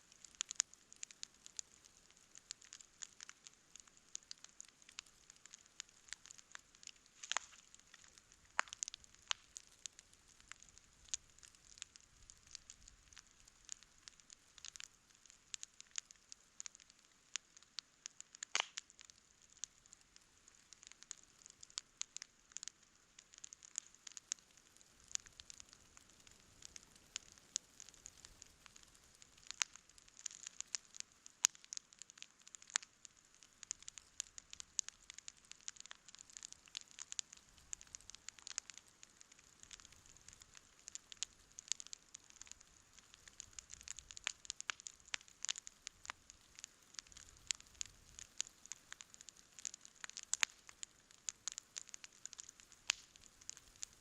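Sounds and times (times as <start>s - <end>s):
campfire crackling and popping: 0.0s - 54.0s
faint hiss: 0.0s - 54.0s.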